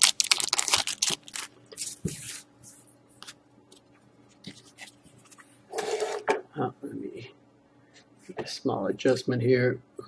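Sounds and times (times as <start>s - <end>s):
foil wrappers crinkling and tearing: 0.0s - 2.4s.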